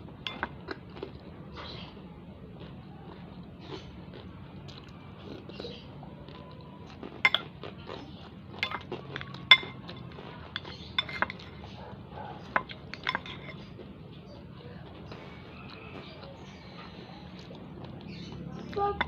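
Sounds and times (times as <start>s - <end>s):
utensil clinking against bowl: 0.2s - 0.6s, 7.2s - 7.6s, 8.6s - 11.8s, 12.4s - 13.7s.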